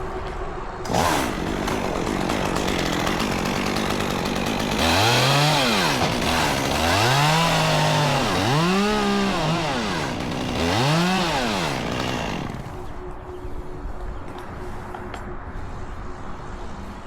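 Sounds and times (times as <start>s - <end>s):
chainsaw revving: 0.8s - 12.9s.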